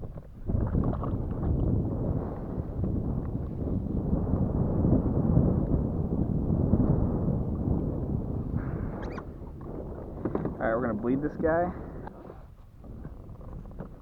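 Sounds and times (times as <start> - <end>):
wind buffeting microphone: 0.0 - 14.0
faint squeak: 9.0 - 9.3.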